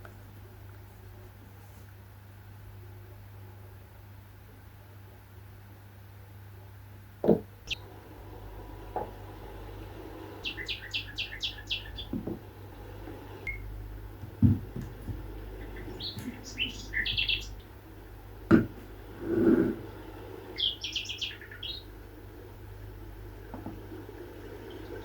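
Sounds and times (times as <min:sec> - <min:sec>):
small bird chirping: 0:10.4 - 0:12.3, 0:13.4 - 0:13.8, 0:15.1 - 0:17.8, 0:19.8 - 0:22.0
dull thumps: 0:12.0 - 0:17.7, 0:18.4 - 0:19.9.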